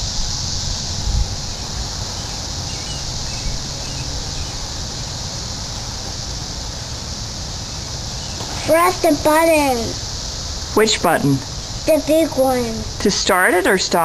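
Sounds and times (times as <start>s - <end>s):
wind rumble on microphone: 0.0s - 7.1s
cicada chorus drone: 0.0s - 14.0s.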